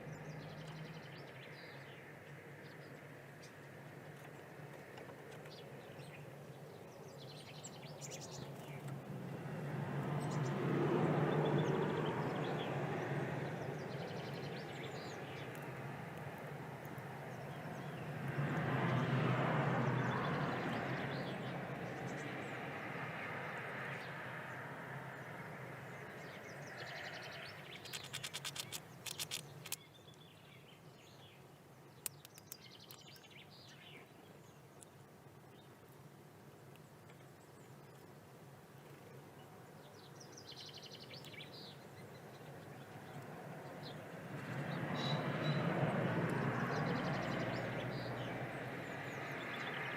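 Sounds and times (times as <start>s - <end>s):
small birds chirping: 11.5s - 19.0s, 25.8s - 36.0s, 36.7s - 45.7s
rattling run of clicks: 27.8s - 29.8s.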